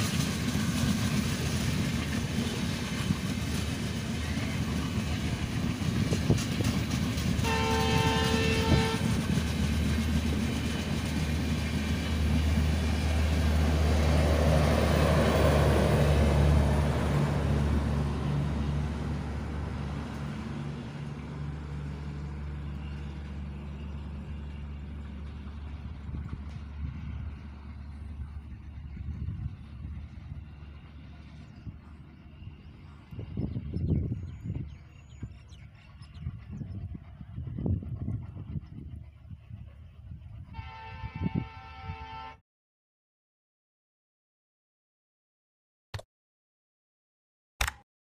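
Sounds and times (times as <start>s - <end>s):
train wheels clattering over rail joints: 0.0s - 12.0s
locomotive horn blast: 7.4s - 9.2s, 40.5s - 42.4s.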